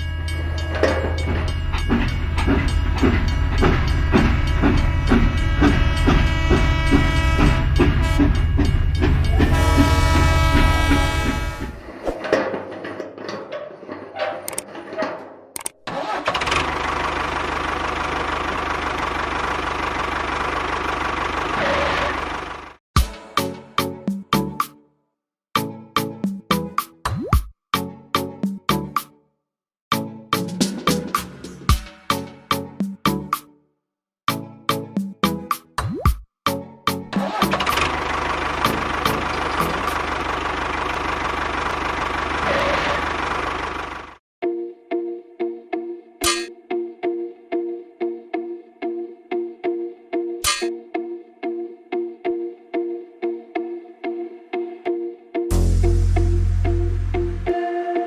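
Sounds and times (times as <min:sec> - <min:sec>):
small engine knocking: 0:37.6 - 0:44.1.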